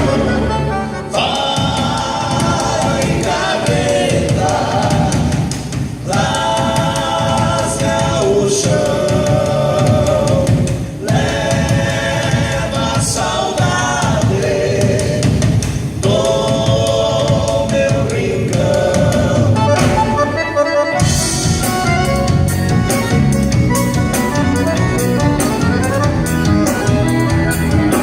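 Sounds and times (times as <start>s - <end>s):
band playing a song: 0.0s - 28.0s
steady drum beat: 0.0s - 28.0s.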